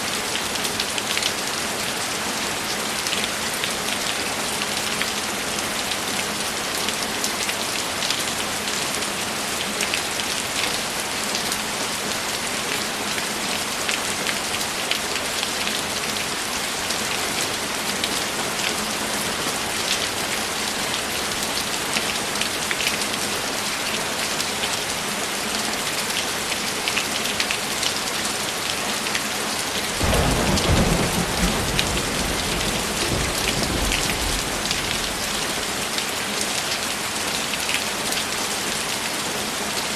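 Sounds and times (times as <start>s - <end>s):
heavy rain falling: 0.0s - 39.9s
low rumble of thunder: 30.0s - 35.8s.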